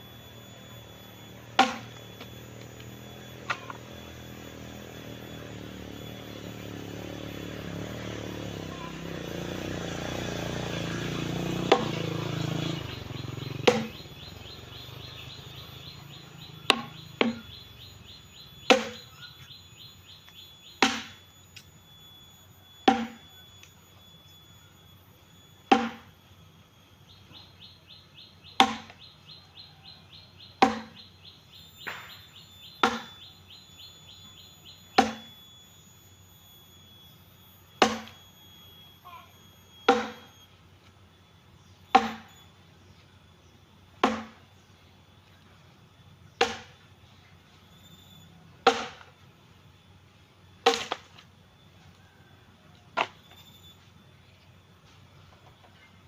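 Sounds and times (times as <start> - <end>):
high pulsing chirr: 0.0 - 56.0
firewood chopping: 1.5 - 2.8, 11.6 - 12.1, 13.6 - 14.1, 16.6 - 17.6, 18.6 - 19.2, 20.8 - 21.2, 22.9 - 23.2, 25.7 - 26.1, 28.6 - 29.0, 30.6 - 31.1, 31.8 - 32.2, 32.8 - 33.2, 35.0 - 35.4, 37.8 - 38.2, 39.9 - 40.3, 41.9 - 42.4, 44.0 - 44.4, 46.4 - 46.8, 48.6 - 49.1, 50.6 - 51.3, 52.9 - 53.3.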